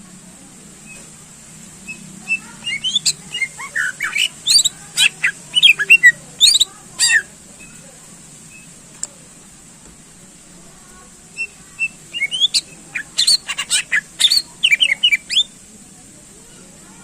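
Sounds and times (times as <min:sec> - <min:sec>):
bird singing sliding whistles: 0:01.8 - 0:04.7, 0:11.4 - 0:15.5.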